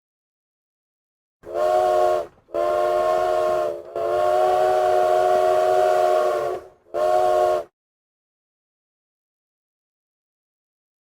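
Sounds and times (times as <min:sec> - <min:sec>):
steam locomotive whistle blasts: 0:01.4 - 0:07.7.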